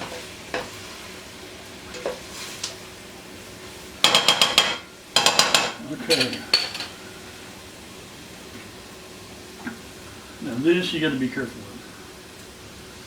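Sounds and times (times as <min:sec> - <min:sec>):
vegetables sizzling in butter: 0:00.0 - 0:13.0
spoon knocking against pot: 0:04.0 - 0:06.9.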